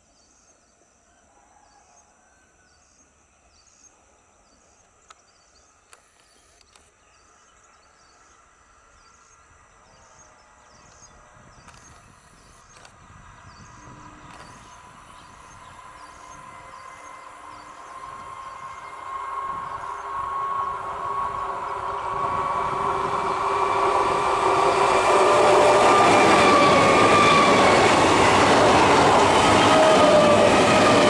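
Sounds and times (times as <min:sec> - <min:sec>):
electric train whine: 0:03.2 - 0:31.0
train rushing noise: 0:09.6 - 0:31.0.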